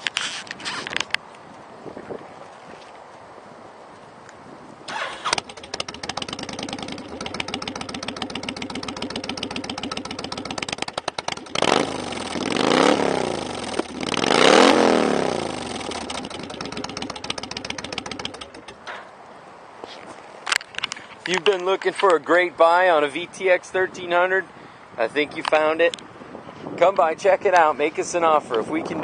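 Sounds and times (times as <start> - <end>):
motorcycle engine idling and revving: 4.9 - 18.9.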